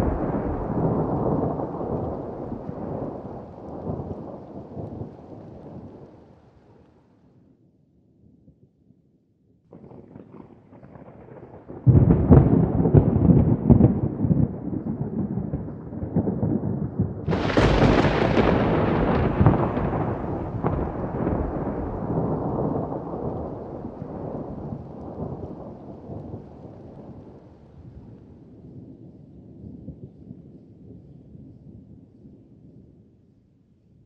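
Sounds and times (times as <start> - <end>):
sharp thunder clap: 0.0 - 5.1, 10.8 - 25.8
thunder rumbling: 0.0 - 6.4, 9.7 - 30.0.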